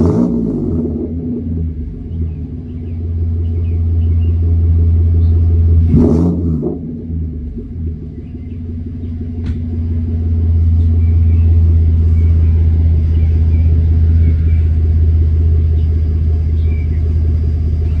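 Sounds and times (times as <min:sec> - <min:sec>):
car engine idling exhaust drone: 0:00.0 - 0:18.0.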